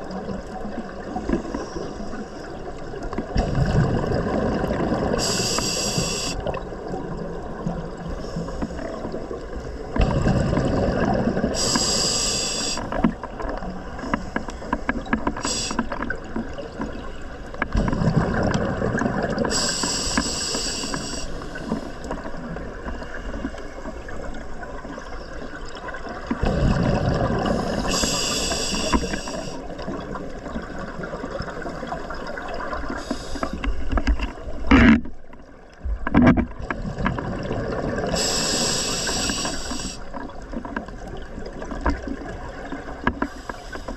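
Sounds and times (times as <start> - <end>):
exhaled air bubbling underwater: 0.0 - 43.9
regulator hiss on inhale: 5.2 - 6.5, 11.5 - 13.0, 15.4 - 16.0, 19.5 - 22.1, 27.4 - 29.7, 33.0 - 33.8, 38.2 - 40.1, 43.2 - 43.9.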